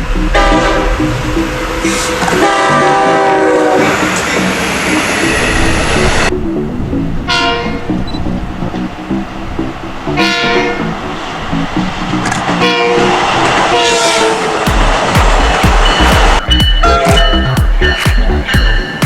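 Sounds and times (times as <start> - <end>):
locomotive horn blasts: 0.0 - 5.7, 7.2 - 8.1, 10.1 - 11.0, 12.5 - 14.6, 16.8 - 17.4
train running noise: 0.0 - 19.0.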